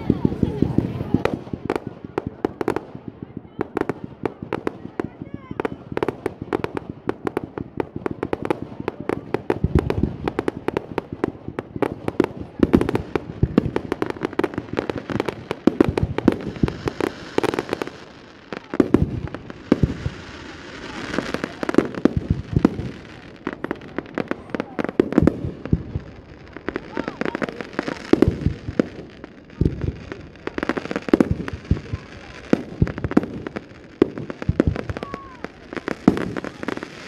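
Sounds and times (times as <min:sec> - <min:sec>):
fireworks crackling fizz: 0:00.0 - 0:37.0
fireworks popping and banging: 0:00.0 - 0:37.0.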